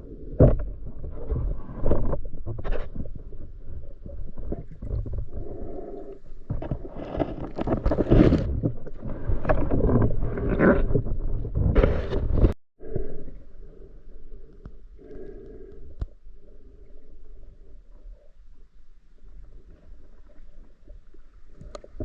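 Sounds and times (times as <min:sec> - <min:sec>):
water gurgling and splashing: 0:06.5 - 0:12.5.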